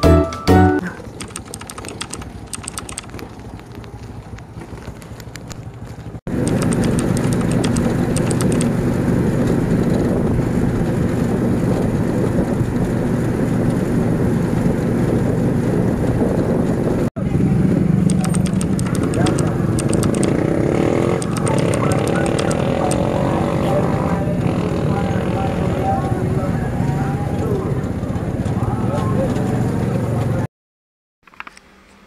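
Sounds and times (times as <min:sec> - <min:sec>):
road and wind noise: 0:00.8 - 0:30.5
motorcycle engine running: 0:01.1 - 0:30.4
light clicking: 0:06.4 - 0:08.7.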